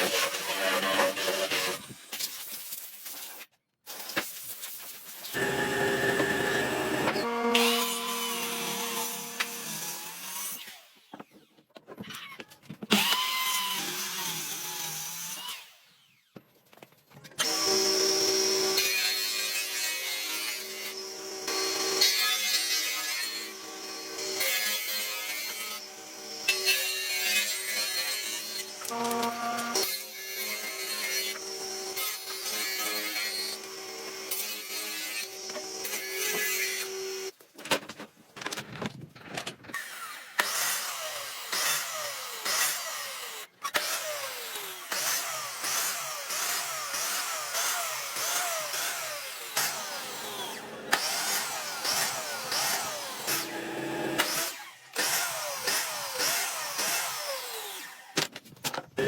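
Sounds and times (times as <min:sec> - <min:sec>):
power tool falling whines: 0:05.3 - 0:07.3
power tool machine tone: 0:05.3 - 0:09.5, 0:28.8 - 0:30.0, 0:45.0 - 0:58.0.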